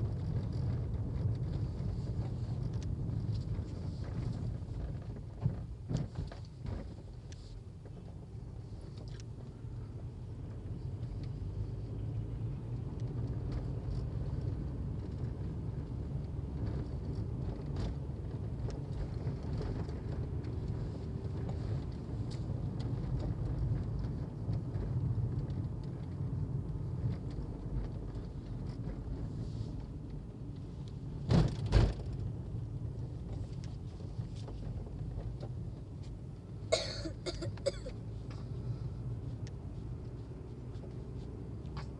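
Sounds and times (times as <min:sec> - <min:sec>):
vehicle engine rumbling: 0:00.0 - 0:41.9.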